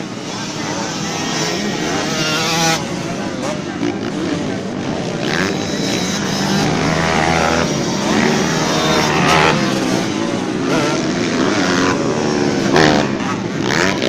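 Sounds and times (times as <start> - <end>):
dirt bike engines revving: 0.0 - 14.0.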